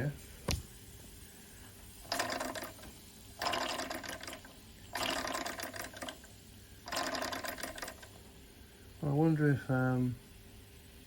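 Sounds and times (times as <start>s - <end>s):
toy steam engine chuffing: 2.0s - 8.2s.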